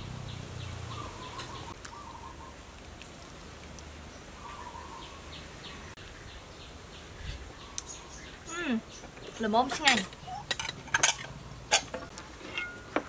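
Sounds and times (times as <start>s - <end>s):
faint background noise: 0.0s - 13.0s.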